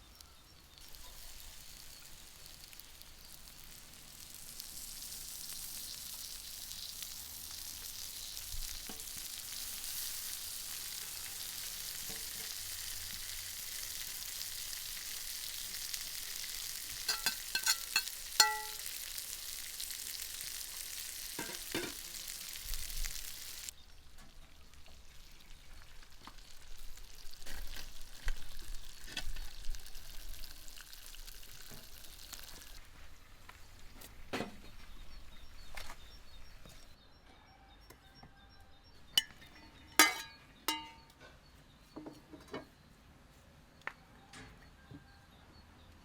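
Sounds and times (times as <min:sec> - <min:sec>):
food sizzling in frying: 0:00.0 - 0:32.8, 0:39.2 - 0:41.0
sharp ringing clinks: 0:17.1 - 0:18.8.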